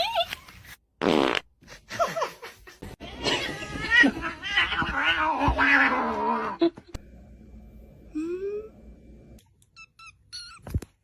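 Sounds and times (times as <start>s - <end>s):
buzzy fart sound: 1.0s - 1.5s
person laughing: 1.7s - 4.4s.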